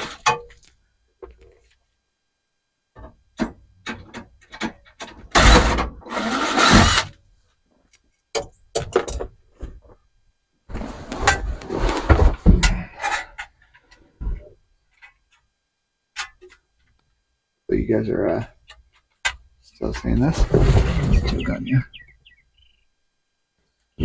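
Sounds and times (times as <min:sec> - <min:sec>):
metal scraping and rattling: 0:19.8 - 0:22.0.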